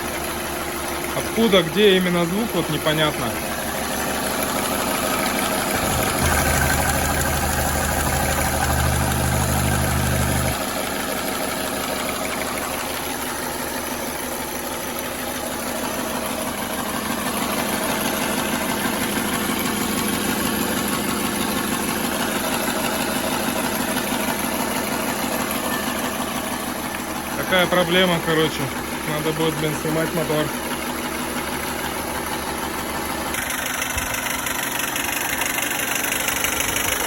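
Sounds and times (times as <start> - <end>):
car engine idling with rapid clatter: 0.0 - 37.0
heavy low rumble: 5.7 - 10.6.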